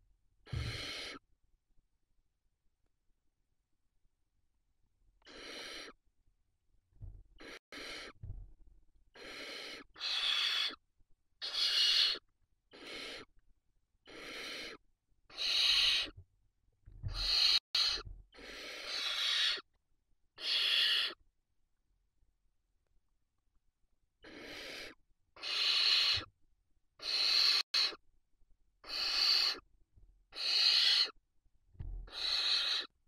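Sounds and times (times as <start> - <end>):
owl chicks hissing: 0.5 - 1.2, 5.2 - 6.0, 7.4 - 8.2, 9.1 - 10.8, 11.4 - 13.3, 14.0 - 16.2, 17.1 - 19.7, 20.4 - 21.2, 24.2 - 26.3, 27.0 - 28.0, 28.8 - 29.6, 30.3 - 31.2, 32.0 - 33.0.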